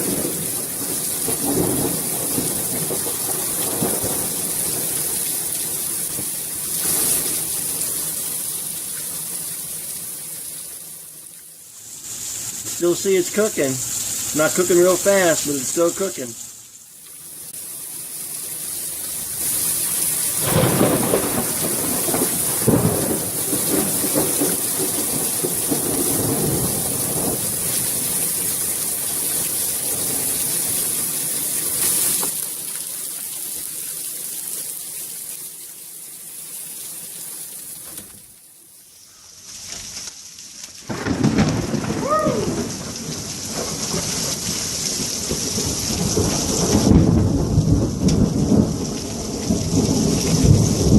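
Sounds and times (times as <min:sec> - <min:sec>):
thunder rumbling: 0:00.0 - 0:07.9, 0:19.3 - 0:31.1, 0:40.9 - 0:50.9
heavy rain pouring: 0:00.0 - 0:38.4, 0:39.4 - 0:50.9.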